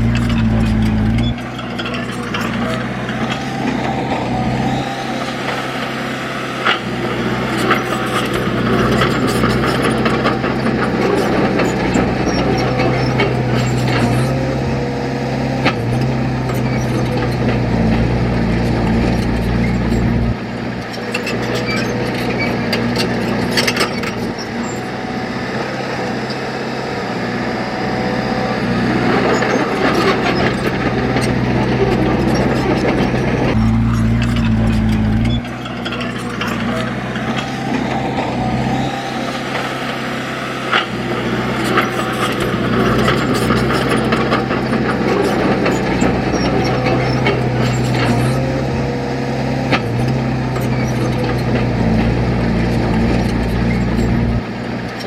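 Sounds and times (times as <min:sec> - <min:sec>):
heavy diesel engine droning: 0:00.0 - 0:55.0.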